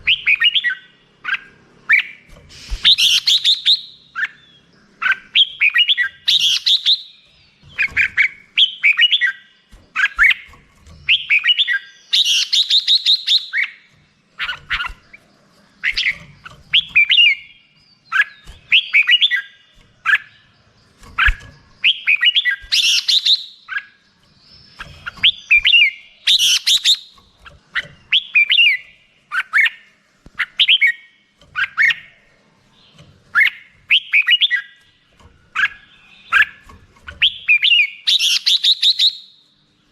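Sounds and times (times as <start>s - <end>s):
bird whistling phrases: 21.2s - 24.0s.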